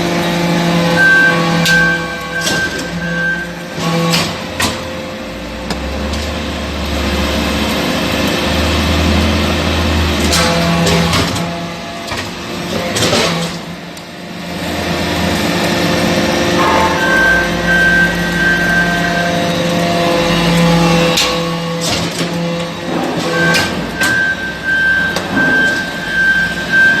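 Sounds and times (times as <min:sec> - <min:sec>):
sharp metallic knocks: 0:16.6 - 0:19.0.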